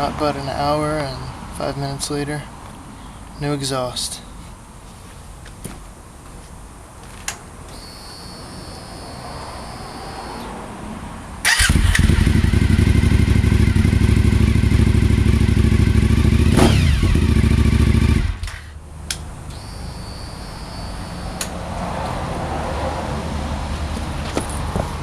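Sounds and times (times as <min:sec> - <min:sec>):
motorcycle engine starting and idling: 0:11.4 - 0:18.8
motorcycle rev blip: 0:11.5 - 0:21.6.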